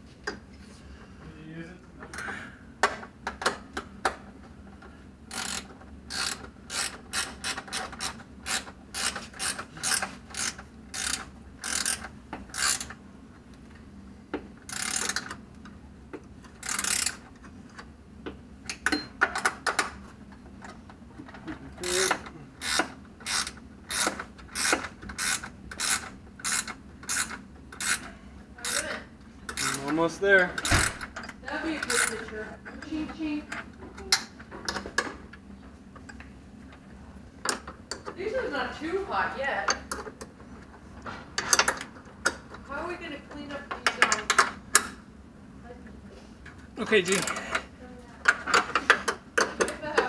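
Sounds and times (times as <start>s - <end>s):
socket ratchet clicking: 5.3s - 13.0s, 14.7s - 15.4s, 16.6s - 17.2s, 21.8s - 28.0s, 29.5s - 30.0s, 30.6s - 31.2s, 31.8s - 32.2s.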